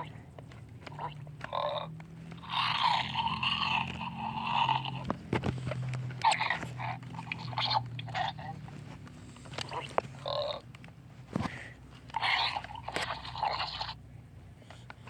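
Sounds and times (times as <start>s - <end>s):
toy clicks: 0.8s - 5.1s
toy dinosaur call: 0.8s - 5.1s, 6.2s - 8.6s, 9.6s - 10.6s, 12.1s - 14.0s.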